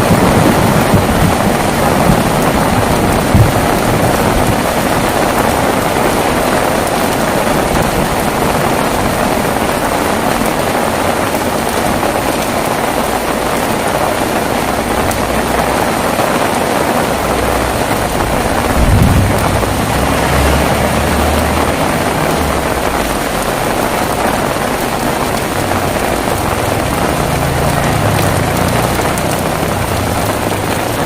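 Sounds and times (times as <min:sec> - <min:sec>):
heavy rain: 0:00.0 - 0:31.0
low rumble: 0:17.3 - 0:23.8.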